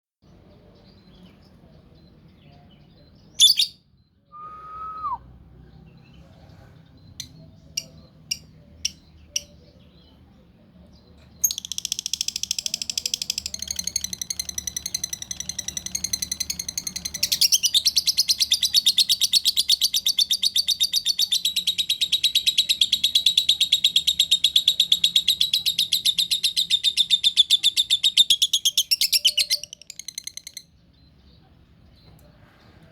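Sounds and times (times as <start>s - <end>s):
lovebird chirps: 2.5s - 4.2s, 7.0s - 10.2s, 11.2s - 30.8s
rapid chattering bird trill: 7.2s - 9.6s, 11.4s - 30.6s.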